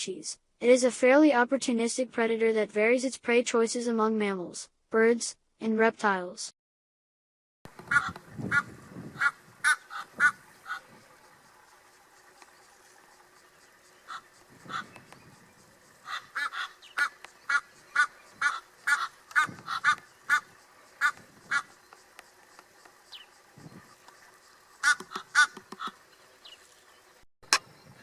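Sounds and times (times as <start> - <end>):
short pitched bird calls: 7.9 - 11.0, 12.7 - 21.9.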